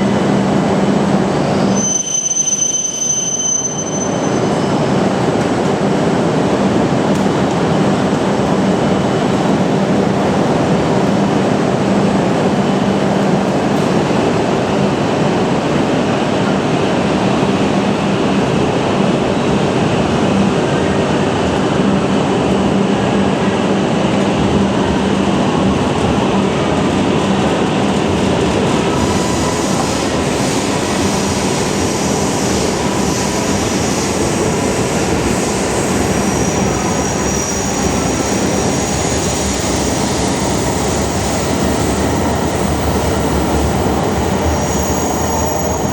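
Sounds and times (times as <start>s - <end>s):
train rushing past: 4.1s - 45.9s.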